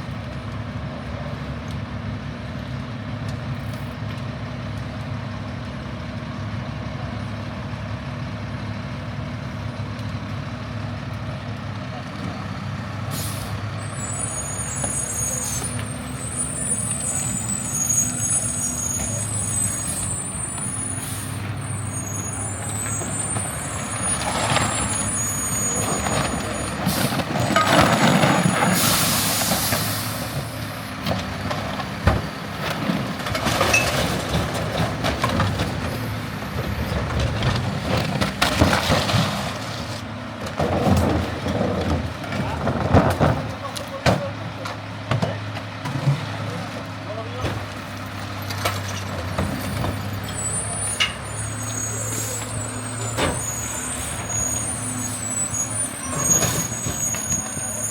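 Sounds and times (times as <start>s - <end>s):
diesel truck engine running: 0.0s - 57.9s
air brake hiss: 13.1s - 15.8s, 16.5s - 23.3s, 28.8s - 30.6s
high squealing: 13.2s - 30.8s, 48.9s - 57.9s.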